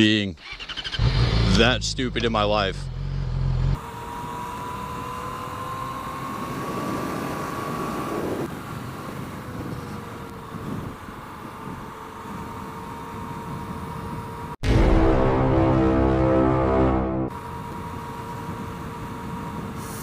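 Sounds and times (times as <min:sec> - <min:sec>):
motorcycle engine running: 0:00.5 - 0:14.6, 0:17.3 - 0:19.8
wind noise: 0:06.5 - 0:14.5.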